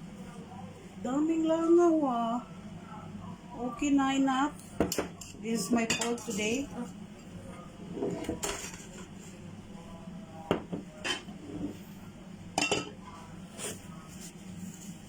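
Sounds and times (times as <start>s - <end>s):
dishes and cutlery clinking: 4.8s - 7.3s, 8.0s - 9.1s, 10.5s - 11.8s, 12.6s - 13.0s.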